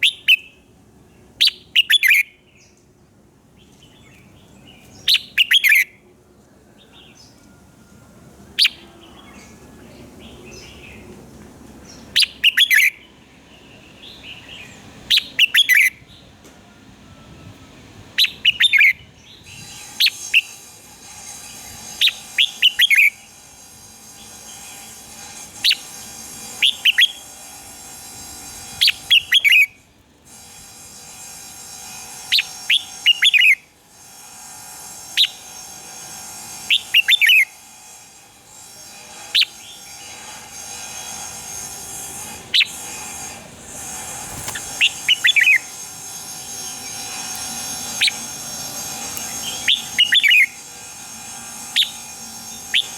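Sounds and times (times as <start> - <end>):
bird singing: 0.0 - 2.8, 3.6 - 6.0, 6.7 - 11.2, 11.8 - 16.4, 18.2 - 25.0, 26.6 - 27.3, 28.7 - 29.8, 32.3 - 33.6, 36.6 - 37.6, 42.5 - 52.9
steady background hiss: 0.0 - 52.9.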